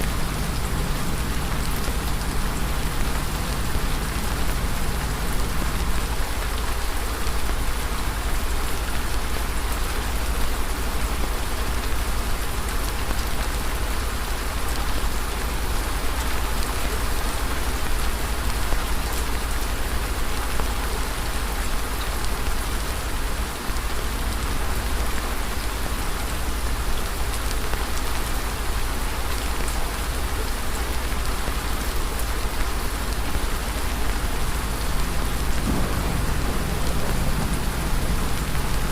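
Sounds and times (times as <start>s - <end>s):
constant low rumble: 0.0s - 9.1s, 33.2s - 38.9s.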